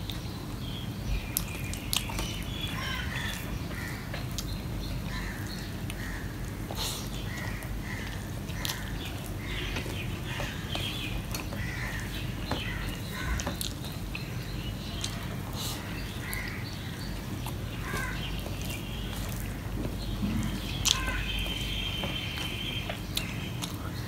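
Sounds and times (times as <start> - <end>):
chewing and wet mouth clicks: 1.3 - 2.4, 8.0 - 9.4, 17.4 - 17.7.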